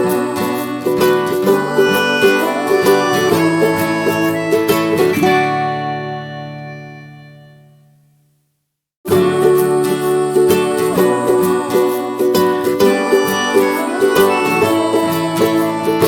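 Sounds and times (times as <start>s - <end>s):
acoustic plucked-string music: 0.0s - 8.2s, 9.1s - 16.0s.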